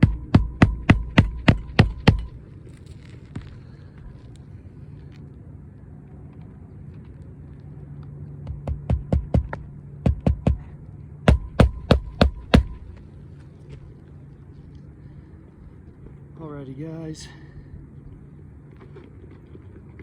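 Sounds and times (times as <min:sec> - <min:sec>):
hammer striking nails: 0:00.0 - 0:02.4, 0:08.4 - 0:10.7, 0:11.3 - 0:12.9
steady low hum: 0:00.0 - 0:20.0.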